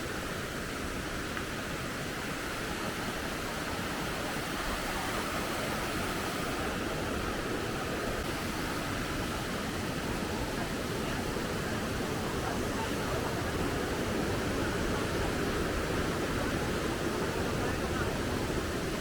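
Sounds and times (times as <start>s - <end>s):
river rushing: 0.0s - 19.0s.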